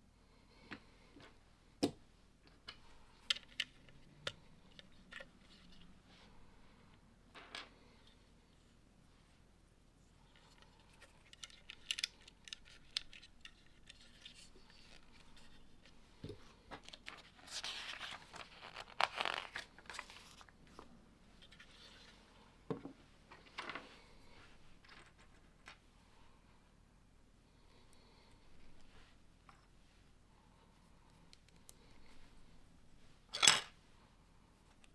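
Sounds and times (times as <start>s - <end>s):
crinkling and rustling: 10.2s - 25.9s.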